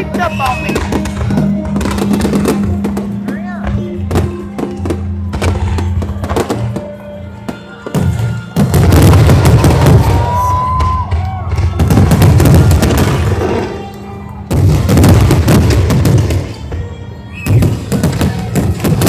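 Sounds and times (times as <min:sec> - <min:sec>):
firework whistle: 0:00.0 - 0:01.2, 0:07.5 - 0:13.8, 0:17.1 - 0:18.5
fireworks booming and crackling: 0:00.0 - 0:19.0.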